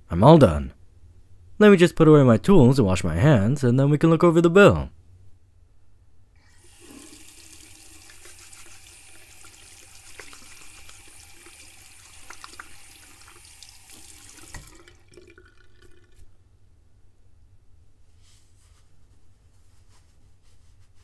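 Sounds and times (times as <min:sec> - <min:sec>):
tap water running into sink: 0:06.6 - 0:16.2
small splashes and clicks: 0:12.1 - 0:12.8.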